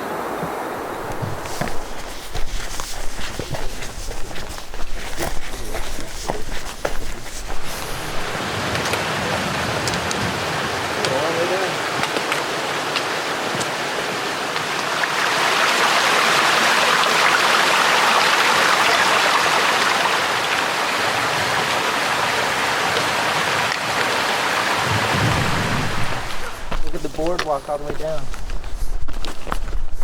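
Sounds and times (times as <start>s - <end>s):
stream water rushing: 11.7s - 29.8s.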